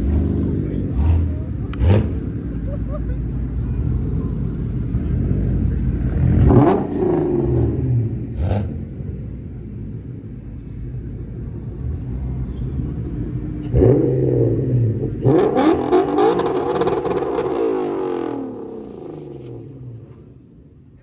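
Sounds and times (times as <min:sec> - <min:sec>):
car engine revving sharply: 0:00.0 - 0:09.4, 0:11.8 - 0:20.4
car engine idling rumble: 0:00.0 - 0:21.0
harsh engine with crackling: 0:00.0 - 0:21.0.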